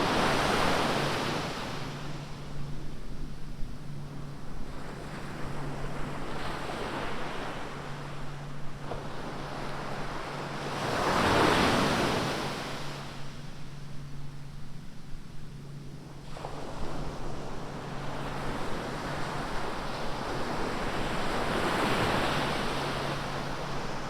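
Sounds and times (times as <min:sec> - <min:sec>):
surf waves on sandy beach: 0:00.0 - 0:02.3, 0:08.8 - 0:13.3
low steady hum: 0:00.0 - 0:24.0.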